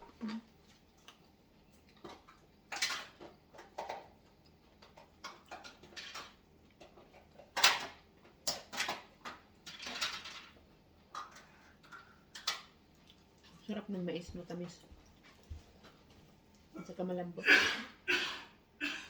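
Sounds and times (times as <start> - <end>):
person chewing corn: 0.0 - 5.6.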